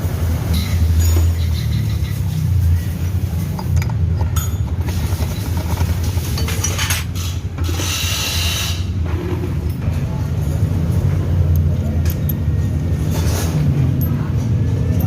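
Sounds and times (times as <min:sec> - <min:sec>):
metallic clicks and ratcheting: 0:11.5 - 0:12.5.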